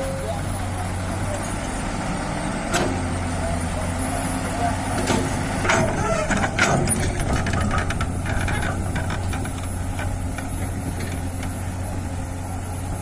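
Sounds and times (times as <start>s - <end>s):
diesel engine running: 0.0s - 13.0s
knocks and rattles: 5.0s - 11.7s.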